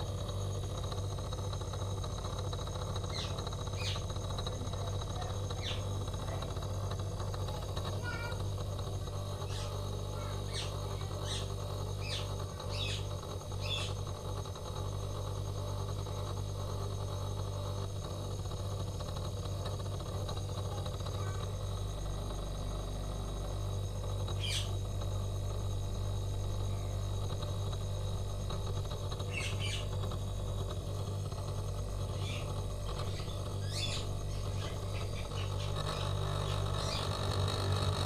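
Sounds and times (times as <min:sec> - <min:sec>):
refrigerator compressor humming: 0:00.0 - 0:38.0
birds chirping: 0:03.0 - 0:04.1, 0:09.4 - 0:14.0, 0:24.4 - 0:24.8, 0:29.2 - 0:30.0, 0:32.1 - 0:37.2.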